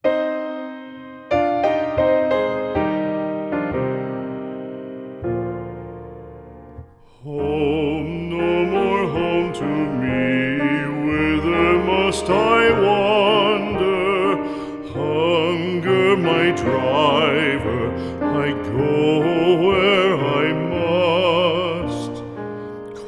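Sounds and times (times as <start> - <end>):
piano accompaniment: 0.0 - 23.0
classical voice singing with vibrato: 7.0 - 23.0.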